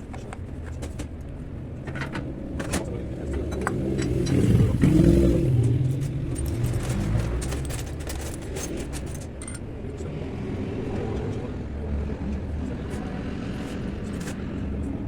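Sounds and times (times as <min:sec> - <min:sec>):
car engine running: 0:00.1 - 0:10.1.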